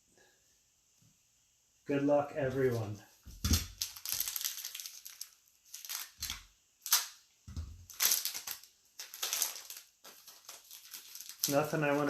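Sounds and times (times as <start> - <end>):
card pack wrapper tearing: 3.5 - 7.2, 7.8 - 12.0.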